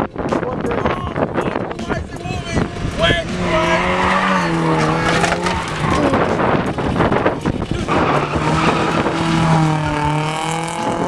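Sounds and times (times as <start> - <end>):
tyres skidding on pavement: 1.9 - 11.0
car engine at high revs: 2.4 - 11.0.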